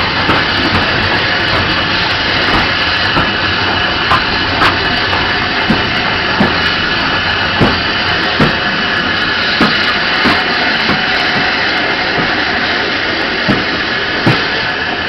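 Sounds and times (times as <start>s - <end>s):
wheels knocking over rail joints: 0.0s - 12.6s, 13.4s - 14.7s
steady rushing noise: 0.0s - 15.0s.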